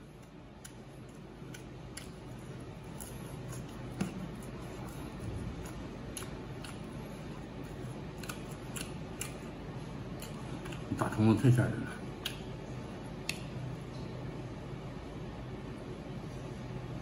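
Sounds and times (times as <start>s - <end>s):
soft wet chewing squelches: 0.0s - 14.4s.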